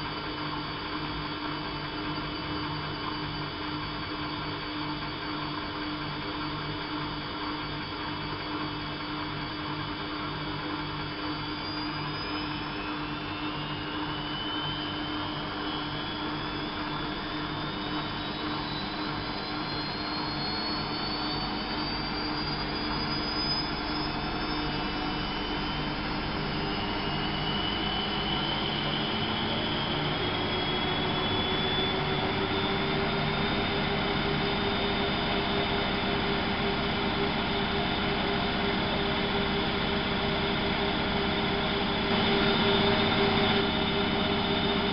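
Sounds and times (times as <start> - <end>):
washing machine spinning: 11.6 - 44.9.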